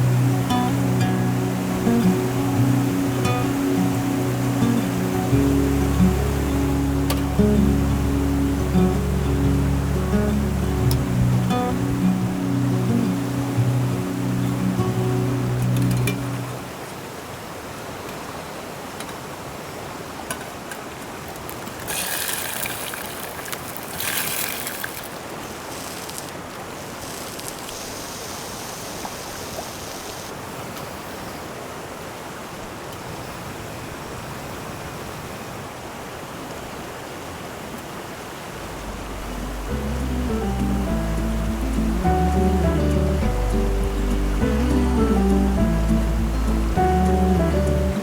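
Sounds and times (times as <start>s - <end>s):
mountain river rushing: 0.0s - 48.0s.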